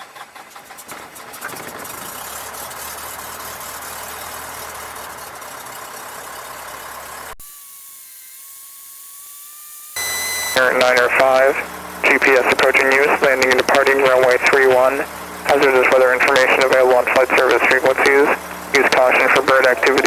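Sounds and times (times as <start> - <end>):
aircraft engine idling: 0.0 - 7.4, 10.0 - 20.0
thin steady whine: 7.4 - 20.0.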